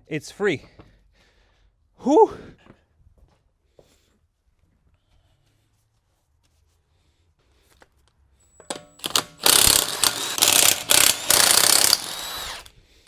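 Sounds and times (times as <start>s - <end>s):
power tool whining: 8.4s - 12.7s.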